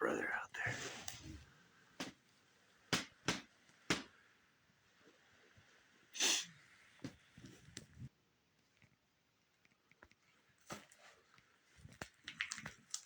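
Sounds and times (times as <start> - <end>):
sneeze-like snort: 6.2 - 6.5.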